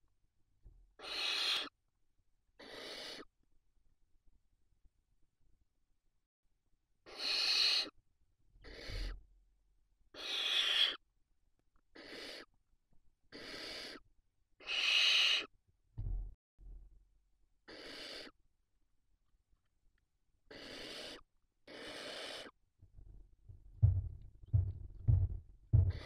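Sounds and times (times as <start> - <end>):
barn owl screeching: 1.0 - 1.7, 2.6 - 3.3, 7.1 - 8.0, 8.6 - 9.2, 10.1 - 11.0, 12.0 - 12.5, 13.3 - 14.0, 14.6 - 15.5, 17.7 - 18.4, 20.5 - 22.6
dull low thumps: 16.0 - 16.9, 23.0 - 26.0.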